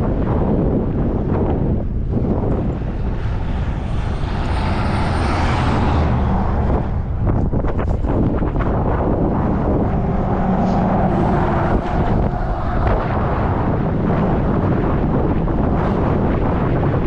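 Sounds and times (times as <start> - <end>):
wind buffeting microphone: 0.0 - 17.0
passing vehicle road noise: 1.1 - 17.0.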